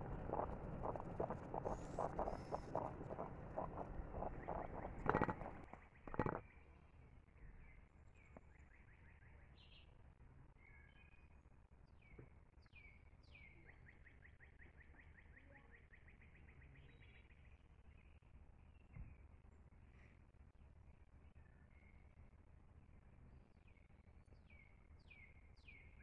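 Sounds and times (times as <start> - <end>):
birds singing: 0.0 - 6.4.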